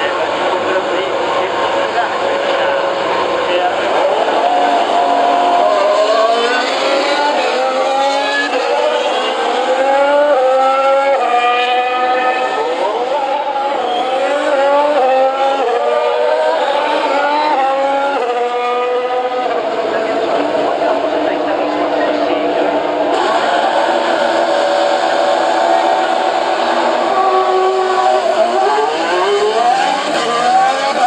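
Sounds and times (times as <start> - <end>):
racing car engines accelerating: 0.0 - 31.0.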